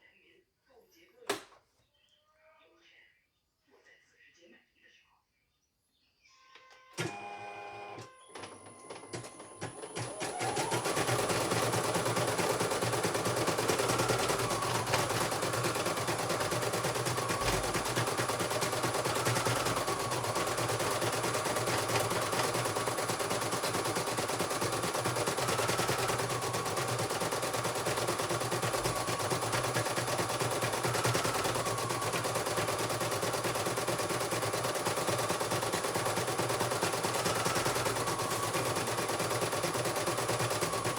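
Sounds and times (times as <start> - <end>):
embroidery machine needle clatter: 10.3 - 40.9.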